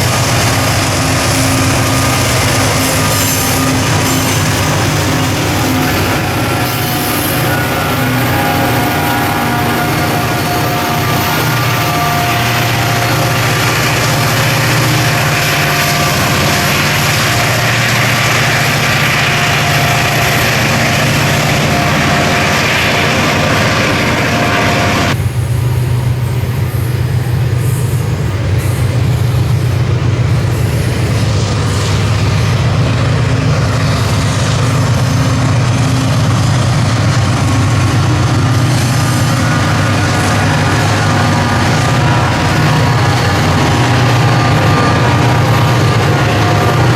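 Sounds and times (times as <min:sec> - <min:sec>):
diesel locomotive engine drone: 0:00.0 - 0:46.9
train rumbling: 0:00.0 - 0:46.9.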